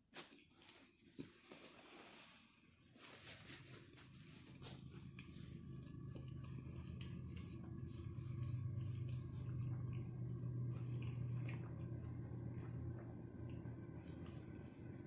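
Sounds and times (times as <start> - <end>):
steady low hum: 2.4 - 15.0
person chewing food: 3.8 - 15.0.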